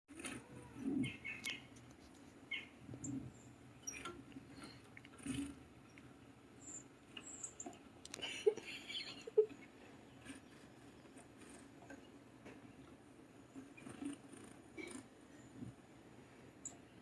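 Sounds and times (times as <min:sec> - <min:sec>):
bird chirps on television: 0:00.8 - 0:01.8, 0:02.5 - 0:04.2, 0:05.3 - 0:07.8.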